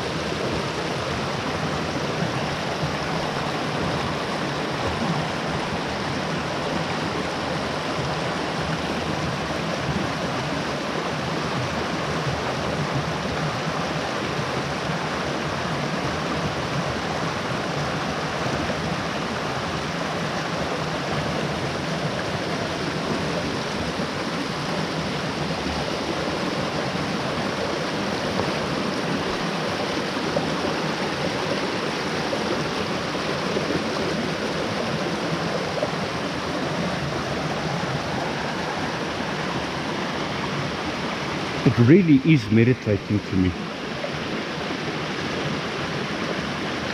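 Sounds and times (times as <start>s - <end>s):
mountain stream rushing: 0.0s - 46.9s.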